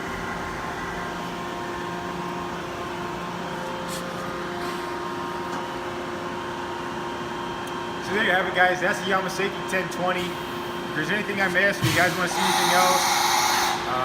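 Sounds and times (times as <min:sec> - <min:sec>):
machining center humming: 0:00.0 - 0:14.0
steady machine tones: 0:10.8 - 0:14.0.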